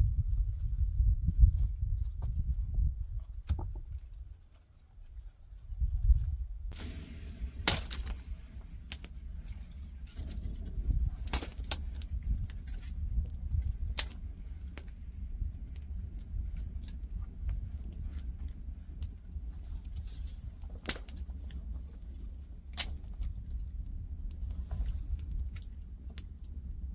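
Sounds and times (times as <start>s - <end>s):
low wind rumble on microphone: 0.0s - 26.9s
campfire crackling and popping: 6.7s - 21.6s.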